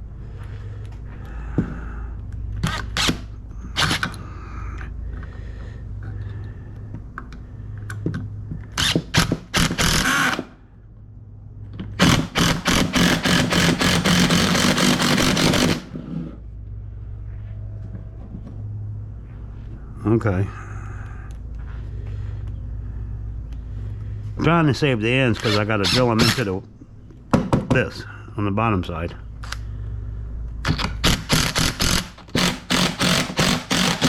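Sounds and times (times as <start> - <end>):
power drill: 8.8 - 10.5, 12.0 - 16.3, 31.0 - 34.0.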